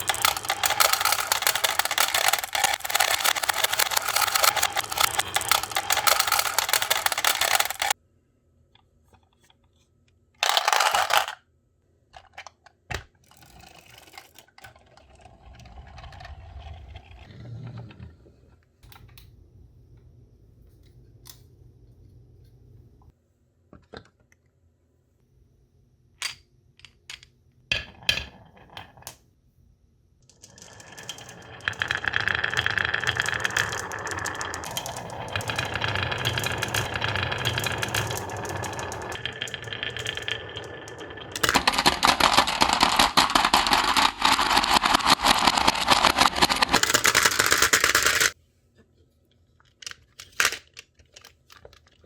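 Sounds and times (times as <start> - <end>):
marbles rattling down wooden run: 0.0 - 8.0, 10.4 - 11.4, 13.3 - 17.2, 30.4 - 48.4.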